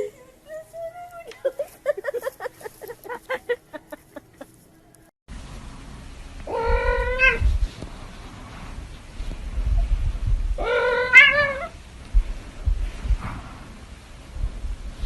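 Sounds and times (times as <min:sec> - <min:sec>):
low rumbling background: 0:03.2 - 0:15.0
cat meowing loudly: 0:06.5 - 0:07.4, 0:10.6 - 0:11.8.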